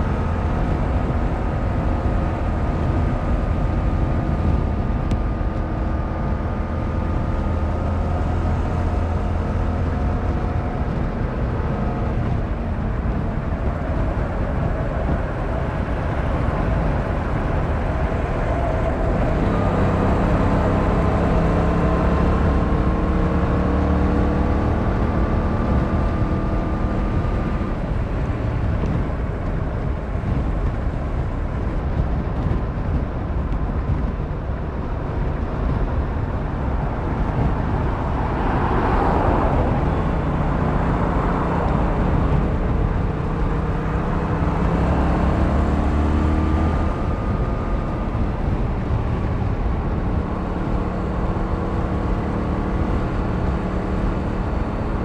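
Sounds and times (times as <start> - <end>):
wind and road noise: 0.0 - 55.0.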